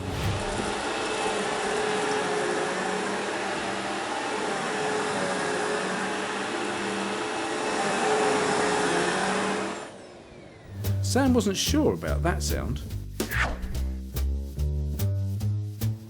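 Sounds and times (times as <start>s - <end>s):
appliance motor whirring hum: 0.7s - 10.7s.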